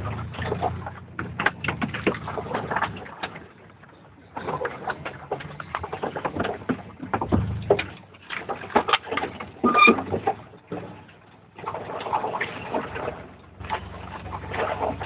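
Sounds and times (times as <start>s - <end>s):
low engine rumble: 0.0s - 15.0s
truck body knocking and rattling: 0.0s - 15.0s
sharp squeak: 9.6s - 10.1s.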